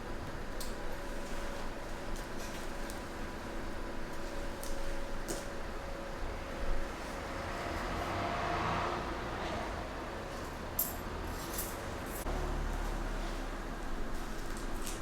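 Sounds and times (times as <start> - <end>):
vehicle passing with low rumble: 7.1 - 10.2, 12.0 - 14.9.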